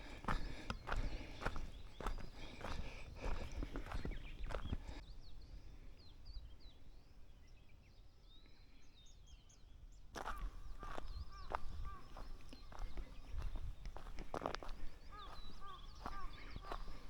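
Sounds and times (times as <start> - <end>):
footsteps on forest trail: 0.0 - 5.0, 10.2 - 17.0
small birds chirping: 0.0 - 17.0.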